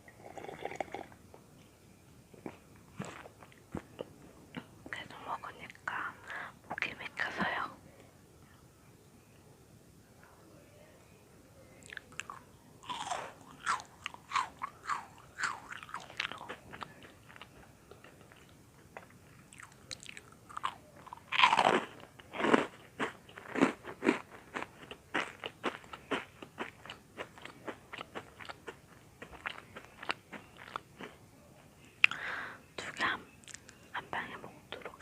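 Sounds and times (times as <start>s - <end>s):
crunching and chewing: 2.4s - 4.7s, 11.8s - 31.2s.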